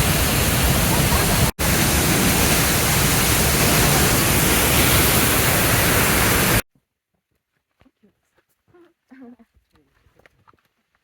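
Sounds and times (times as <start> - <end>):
loud rushing noise: 0.0 - 6.6.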